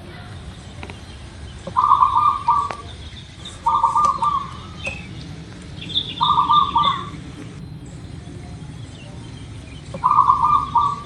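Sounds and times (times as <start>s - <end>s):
bird chirps: 0.1s - 11.0s
dove cooing: 1.6s - 8.7s, 9.9s - 11.0s.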